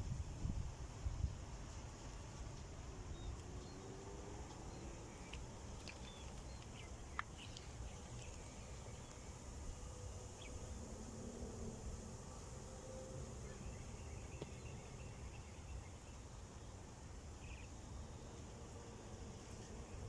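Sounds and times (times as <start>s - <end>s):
wind buffeting microphone: 0.0s - 1.5s
high insect drone: 0.0s - 20.0s.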